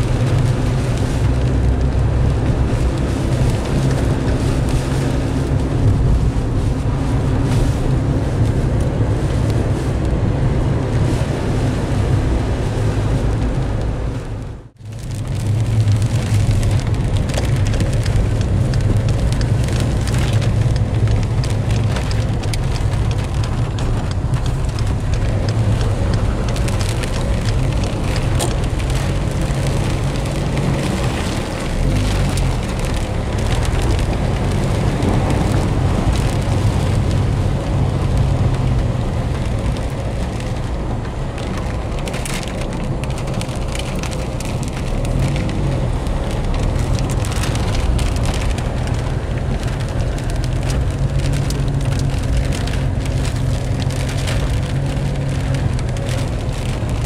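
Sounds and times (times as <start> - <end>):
car driving on wet road: 0.0 - 57.0
heavy rain drumming on car roof: 0.0 - 57.0.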